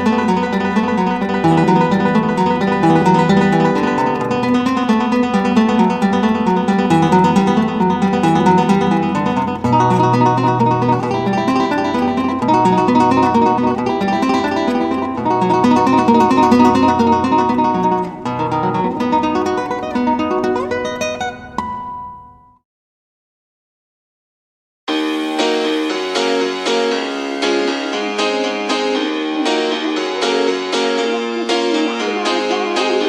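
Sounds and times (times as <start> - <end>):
flamenco acoustic guitar: 0.0 - 22.4.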